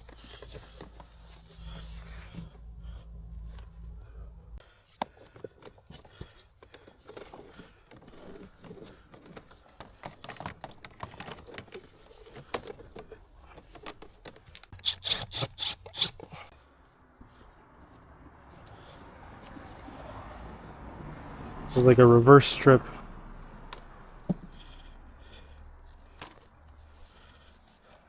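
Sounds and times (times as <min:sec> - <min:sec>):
hand tools rubbing and clicking: 0:00.0 - 0:02.6, 0:14.8 - 0:16.5
sharp scraping of cable jacket: 0:14.7 - 0:16.5.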